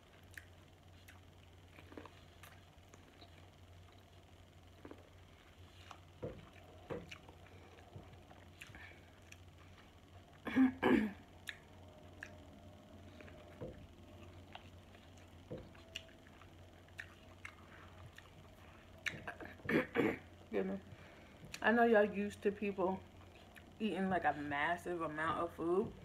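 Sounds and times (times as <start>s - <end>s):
chewing corn on the cob: 0.0s - 10.4s, 11.3s - 19.6s, 23.2s - 23.8s
wet mouth clicks: 11.4s - 12.4s.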